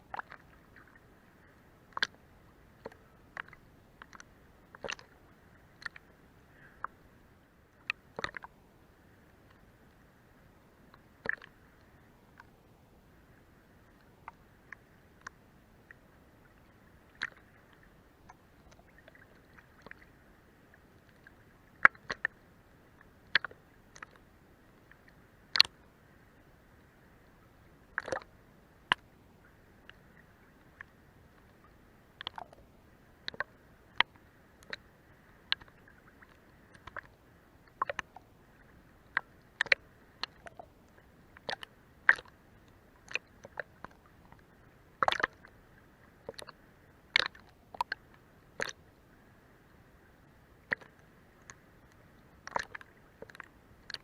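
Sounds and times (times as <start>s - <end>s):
faint steady water wash: 0.0s - 54.0s
water slapping against boat hull: 45.0s - 45.4s.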